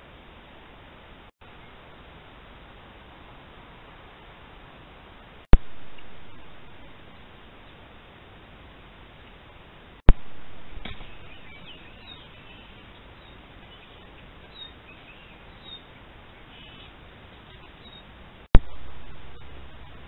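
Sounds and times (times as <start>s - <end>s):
microphone hiss: 0.0s - 20.0s
faint bird chirps: 10.9s - 18.1s.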